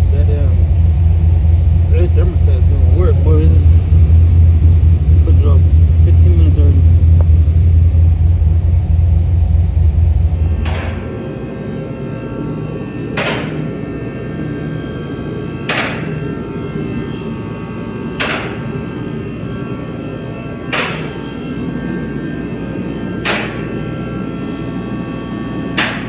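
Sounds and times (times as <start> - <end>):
steady hum: 0.0 - 26.0
sharp knock: 10.4 - 11.3, 13.2 - 13.7, 15.7 - 16.2, 18.2 - 18.8, 20.7 - 21.4, 23.2 - 23.7, 25.8 - 26.0.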